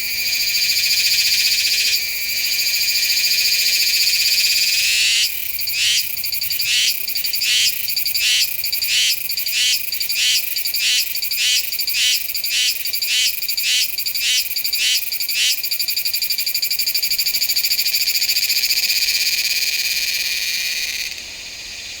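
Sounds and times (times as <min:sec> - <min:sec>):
cicada singing: 0:00.1 - 0:21.1.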